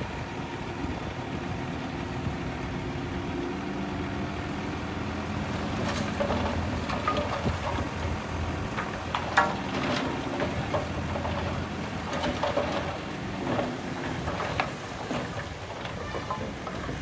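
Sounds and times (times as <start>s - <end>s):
diesel machinery running: 0.0s - 17.0s
soil and stones tumbling: 5.4s - 17.0s
knocks and clanks: 5.6s - 17.0s.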